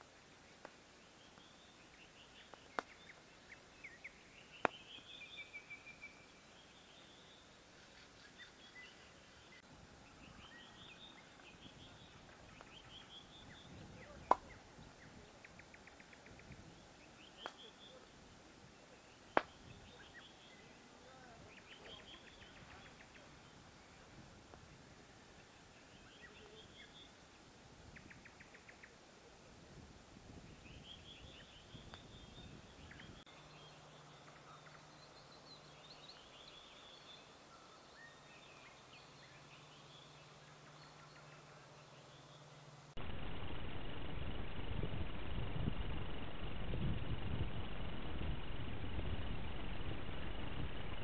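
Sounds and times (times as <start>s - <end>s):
campfire popping: 0.0s - 7.0s, 10.5s - 35.4s
songbird singing: 0.0s - 43.0s.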